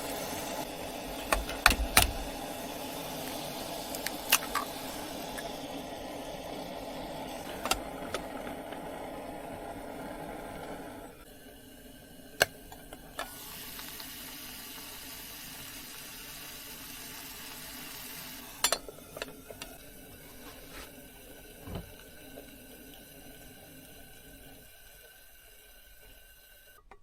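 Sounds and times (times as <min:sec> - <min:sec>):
water running into sink: 0:00.0 - 0:27.0
sharp clicks and knocks: 0:01.3 - 0:02.4.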